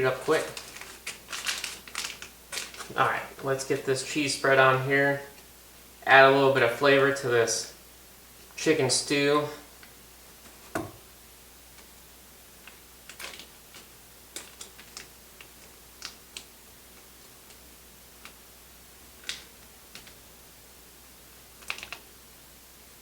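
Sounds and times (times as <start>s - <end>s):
plastic packet crinkling: 0.0s - 3.2s, 13.1s - 15.1s.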